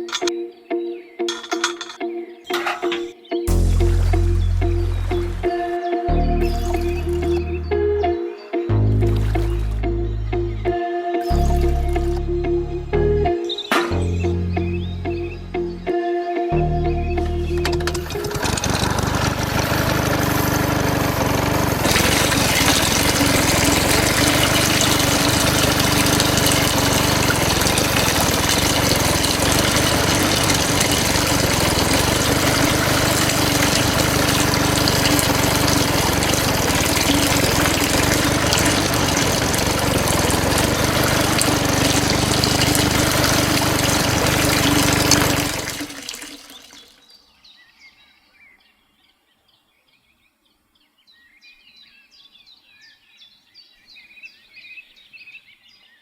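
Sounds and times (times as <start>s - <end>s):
toy water pump motor running: 0.0s - 0.3s, 6.5s - 7.4s, 17.5s - 47.0s
water gushing and splashing: 3.5s - 7.4s, 8.9s - 10.0s, 17.6s - 47.0s.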